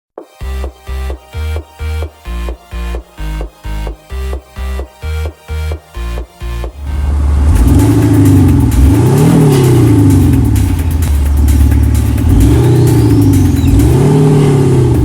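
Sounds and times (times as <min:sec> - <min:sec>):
synthetic engine note revving: 0:06.8 - 0:15.0.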